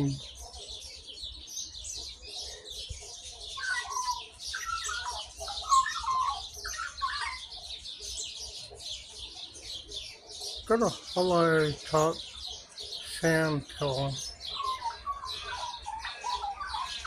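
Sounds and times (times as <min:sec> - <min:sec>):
high-pitched bird twittering: 0:00.0 - 0:17.0
magpie warbling: 0:03.5 - 0:07.6, 0:13.8 - 0:17.0.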